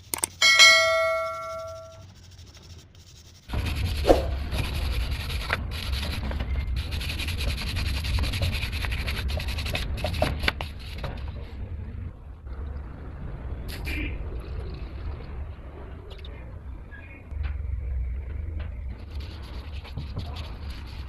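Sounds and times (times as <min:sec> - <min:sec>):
brush scrubbing metal part: 0:00.0 - 0:10.7.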